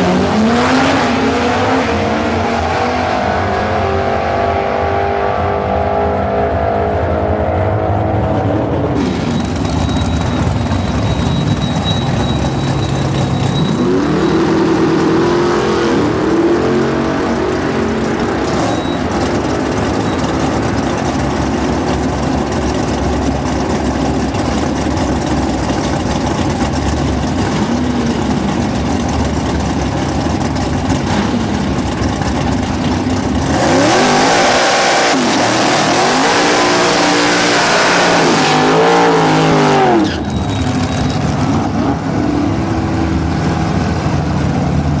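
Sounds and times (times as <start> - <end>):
loud engine revving: 0.0 - 9.8, 13.5 - 21.9, 33.3 - 40.3.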